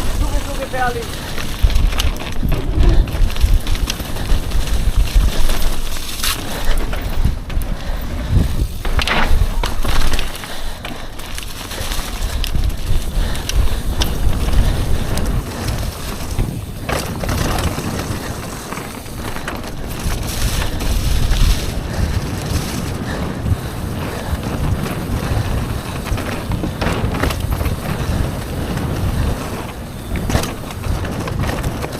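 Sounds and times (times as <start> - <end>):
wheels rolling over rough surface: 0.0 - 31.9
wind buffeting microphone: 0.0 - 31.9.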